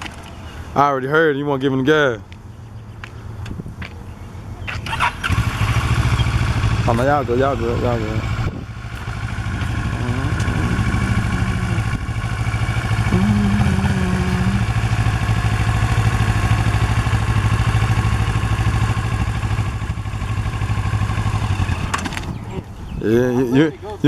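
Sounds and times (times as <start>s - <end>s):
motorcycle engine idling: 4.7s - 22.9s.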